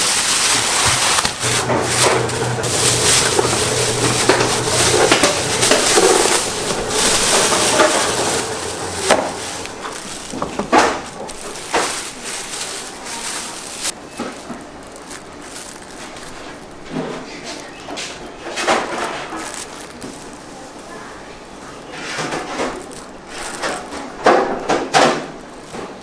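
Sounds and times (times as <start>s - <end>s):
low hum: 1.4s - 11.4s
utensils knocking and clattering: 1.4s - 12.0s
constant hiss: 1.4s - 13.9s.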